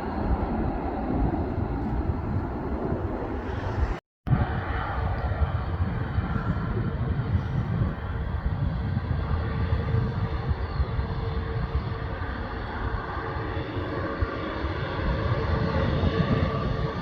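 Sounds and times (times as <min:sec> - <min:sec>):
airliner engines rumbling: 0:00.0 - 0:17.0.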